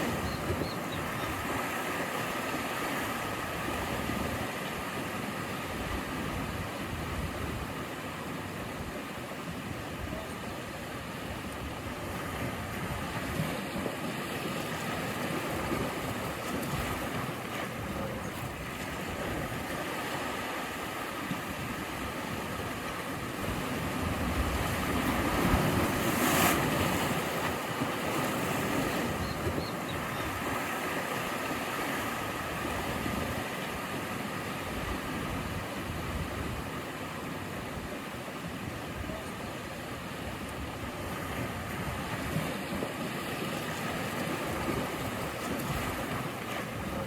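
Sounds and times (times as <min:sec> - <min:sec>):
sea waves breaking: 0:00.0 - 0:47.0
wind rumbling on microphone: 0:05.6 - 0:09.0, 0:21.2 - 0:47.0.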